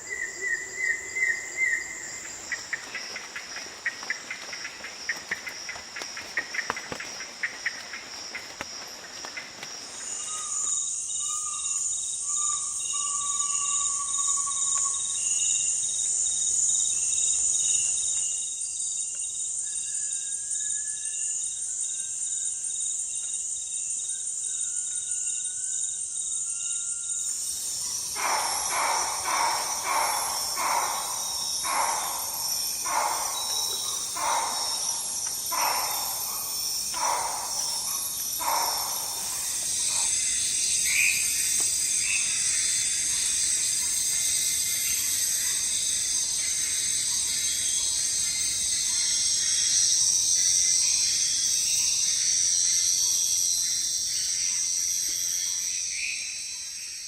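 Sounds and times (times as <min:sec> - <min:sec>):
insects shrilling: 0:27.0 - 0:49.9
repeated calls: 0:28.1 - 0:40.2.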